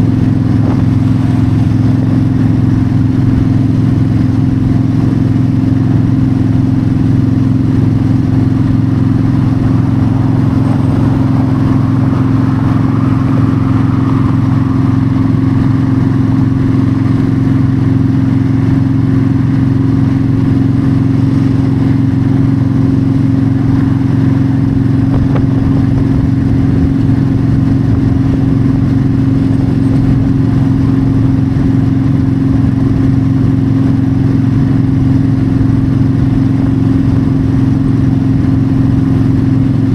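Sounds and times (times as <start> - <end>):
motorcycle engine cruising: 0.0 - 39.9
wind rushing: 6.1 - 19.9.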